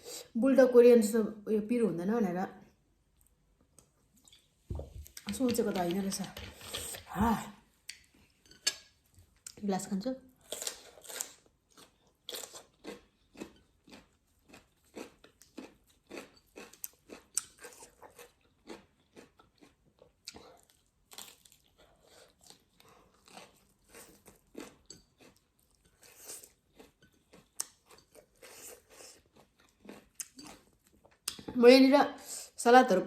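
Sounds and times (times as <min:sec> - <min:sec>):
crunchy salad chewing: 0:10.4 - 0:31.4.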